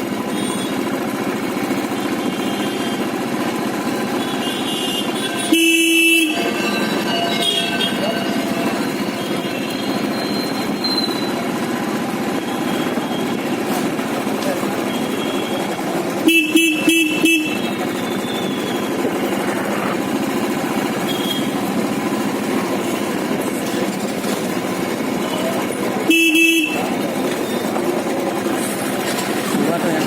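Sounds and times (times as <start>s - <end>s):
motorcycle engine running: 0.0s - 30.0s
road noise: 0.0s - 30.0s
vehicle horn beeps: 0.3s - 1.0s, 1.8s - 3.2s, 4.0s - 11.6s, 12.4s - 13.7s, 14.8s - 19.8s, 20.4s - 21.7s, 25.2s - 27.8s.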